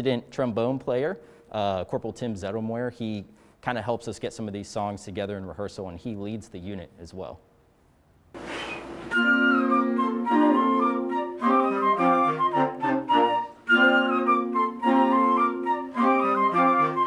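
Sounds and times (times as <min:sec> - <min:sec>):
band music: 0:08.5 - 0:17.0.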